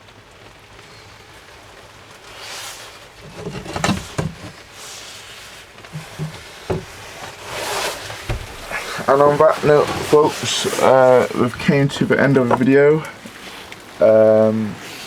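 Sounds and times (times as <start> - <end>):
heavy rain pattering: 0.0 - 15.0
short knocks and taps: 6.0 - 7.0, 8.3 - 9.1.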